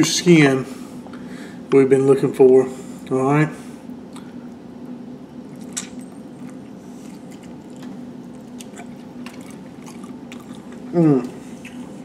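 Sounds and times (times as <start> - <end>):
low steady hum: 0.0 - 12.0
man chewing chicken: 5.4 - 12.0.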